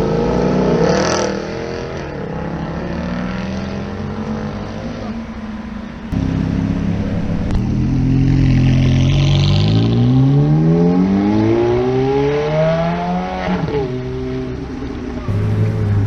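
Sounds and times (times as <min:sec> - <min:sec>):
car engine accelerating hard: 0:15.2 - 0:16.0.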